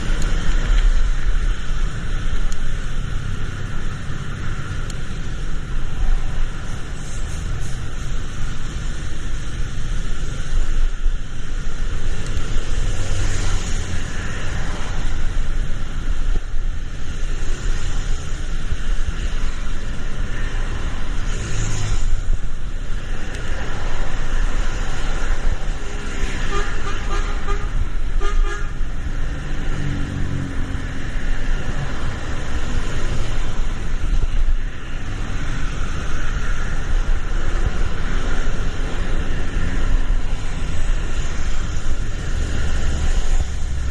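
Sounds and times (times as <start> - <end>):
rain: 0.0 - 43.9
road traffic: 0.0 - 43.9
car horn honking: 26.5 - 28.8.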